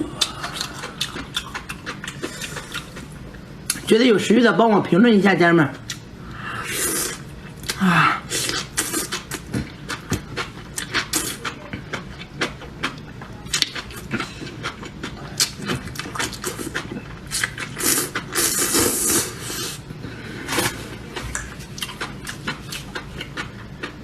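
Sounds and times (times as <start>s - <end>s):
wet chewing and mouth clicks: 0.2s - 3.1s, 8.5s - 18.3s.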